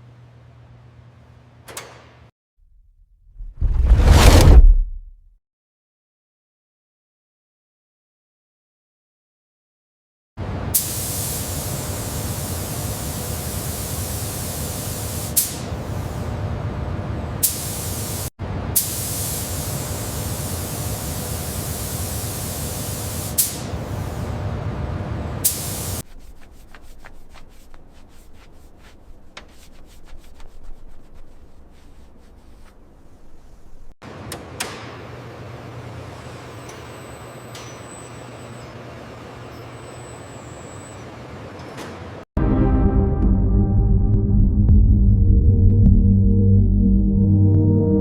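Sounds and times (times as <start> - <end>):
spray gun hissing: 20.4 - 24.2, 25.4 - 26.0.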